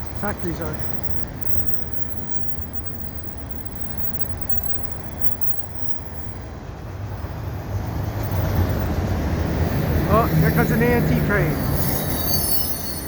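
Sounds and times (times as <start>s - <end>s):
freight train rumbling past: 5.0s - 13.0s.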